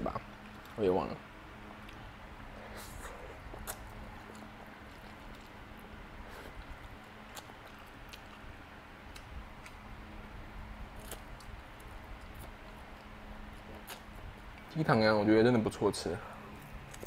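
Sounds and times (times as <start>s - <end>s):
faint steady hum: 0.0s - 17.0s
person chewing noodles: 1.6s - 9.9s, 10.9s - 14.7s
wet mouth clicks: 2.7s - 5.5s.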